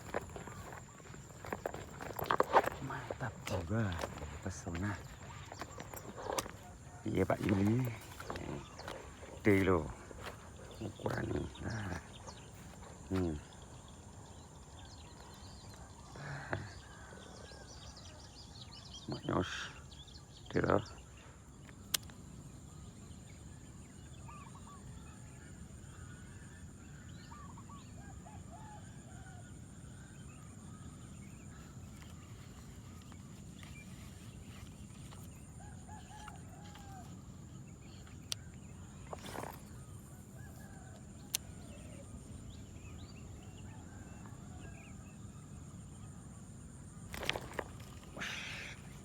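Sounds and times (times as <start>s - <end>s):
birds clucking: 0.0s - 13.5s, 46.9s - 49.0s
steady outdoor hum: 0.0s - 49.0s.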